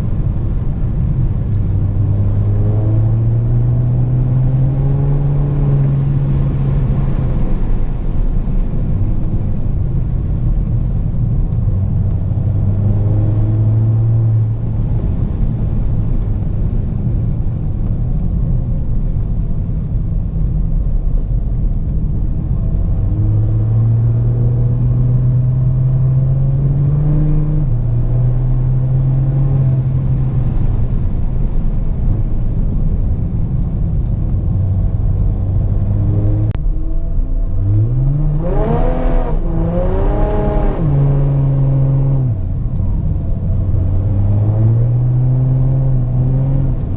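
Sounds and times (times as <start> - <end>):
diesel car exhaust rumble: 0.0 - 46.9.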